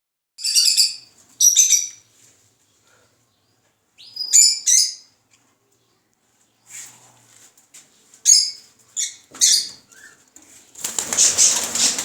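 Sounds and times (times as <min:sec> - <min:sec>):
small bird chirping: 0:03.4 - 0:06.7.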